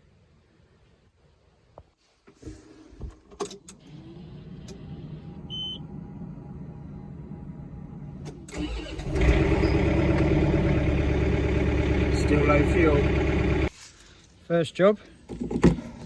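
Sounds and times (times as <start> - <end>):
diesel tractor engine starting: 3.7 - 13.7.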